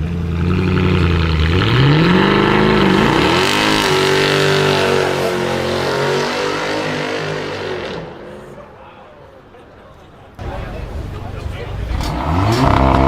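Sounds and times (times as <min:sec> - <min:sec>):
car exhaust accelerating: 0:00.0 - 0:08.1, 0:10.4 - 0:13.0.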